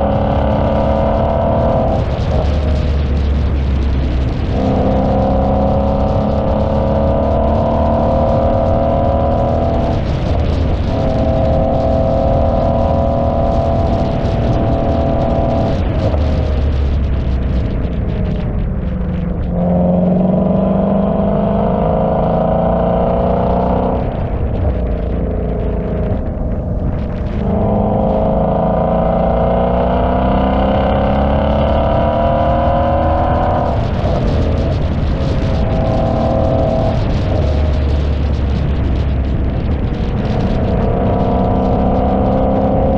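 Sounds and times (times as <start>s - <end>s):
car engine and exhaust droning: 0.0s - 42.9s.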